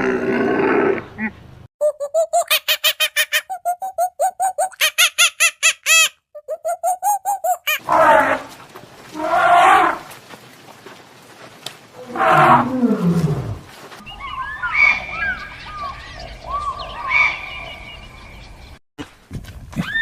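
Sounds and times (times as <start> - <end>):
large animal roaring: 0.0 - 1.3, 7.8 - 8.5, 9.2 - 10.1, 12.0 - 13.7
birds chirping: 1.2 - 8.4, 14.0 - 18.8
short squeaky calls: 2.1 - 7.8.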